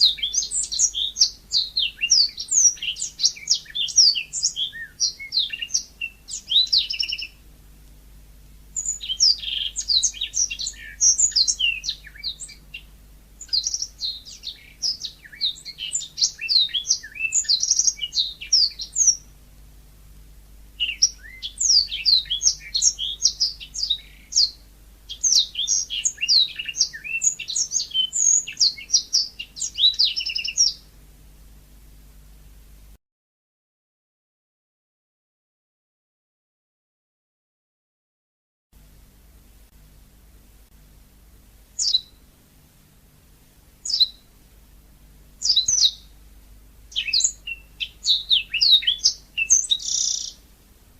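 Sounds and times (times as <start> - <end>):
canary singing chirps and trills: 0.0 - 7.5, 8.6 - 19.4, 20.7 - 30.9, 41.7 - 42.4, 43.8 - 44.4, 45.3 - 50.5.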